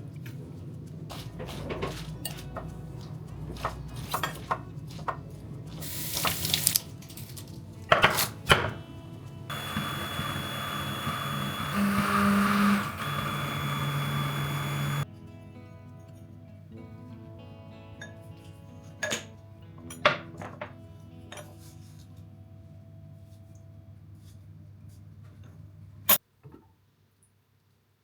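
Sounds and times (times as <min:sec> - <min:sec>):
dishes and cutlery clinking: 0:01.2 - 0:08.8
steady hum with high whine: 0:09.1 - 0:15.0.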